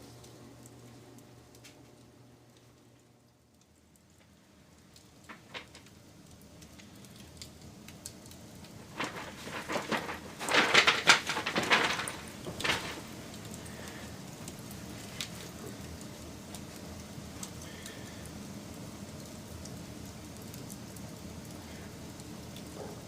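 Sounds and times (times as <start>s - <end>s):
wood fire crackling: 0.0s - 23.0s
fire hissing: 4.2s - 23.0s.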